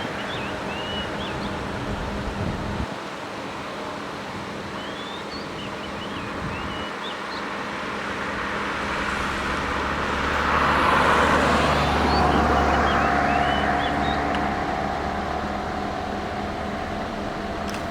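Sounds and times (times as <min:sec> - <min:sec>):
jet airliner engines roaring: 0:06.2 - 0:17.9
small birds chirping: 0:11.3 - 0:17.9.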